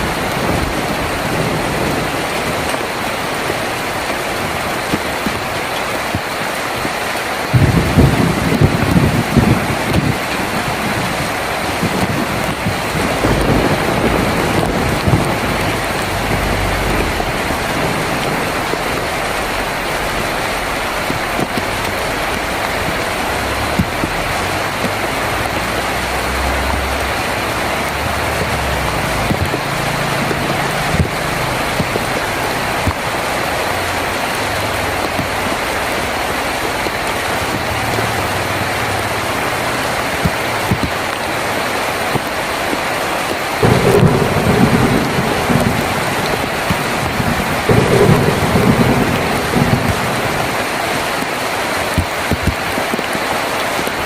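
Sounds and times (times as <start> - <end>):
low thunder rumbles: 0.0 - 41.0, 43.6 - 53.1
heavy rain on tin roof: 0.0 - 54.0.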